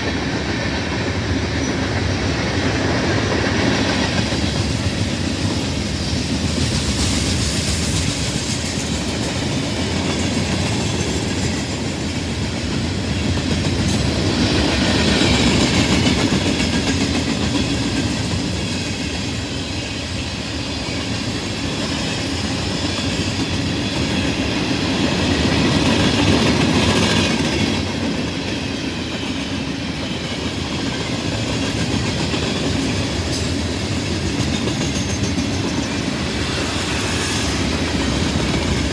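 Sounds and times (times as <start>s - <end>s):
train wheels clattering over rail joints: 20.8s - 38.9s.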